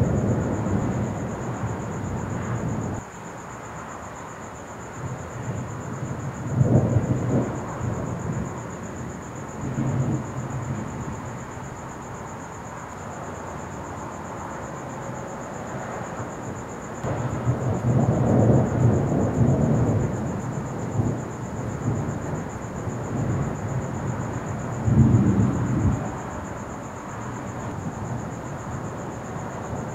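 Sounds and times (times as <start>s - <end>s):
thunder rumbling: 0.0s - 3.0s, 5.0s - 11.9s, 17.0s - 29.9s.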